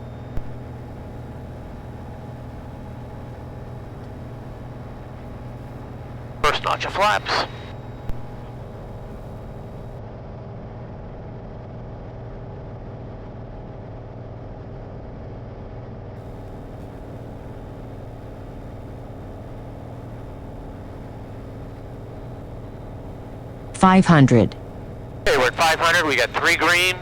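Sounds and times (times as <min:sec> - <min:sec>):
propeller aircraft engine droning: 0:00.0 - 0:10.0, 0:16.2 - 0:27.0.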